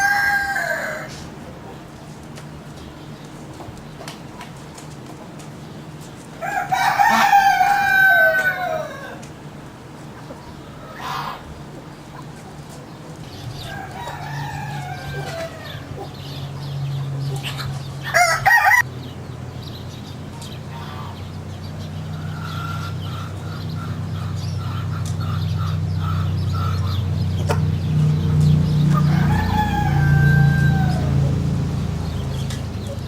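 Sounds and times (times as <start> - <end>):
chicken clucking: 0.0 - 5.4, 6.0 - 9.4, 10.0 - 18.8, 20.3 - 28.1
chickens calling: 0.0 - 33.0
steady low hum: 0.0 - 33.0.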